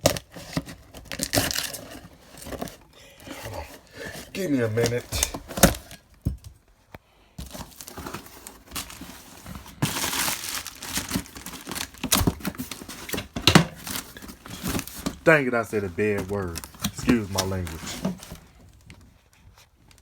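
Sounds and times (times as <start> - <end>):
plastic packaging crinkling and tearing: 0.0 - 6.0, 7.4 - 20.0
clicks and knocks of items handled: 10.9 - 15.2, 16.1 - 19.0.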